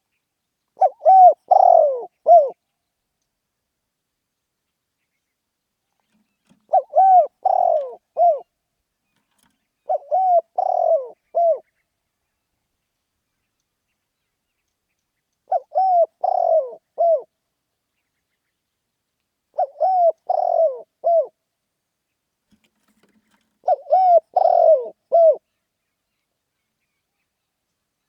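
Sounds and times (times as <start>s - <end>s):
dove cooing: 0.8s - 2.6s, 6.1s - 8.5s, 9.4s - 11.7s, 15.5s - 17.3s, 19.5s - 21.4s, 22.8s - 25.4s.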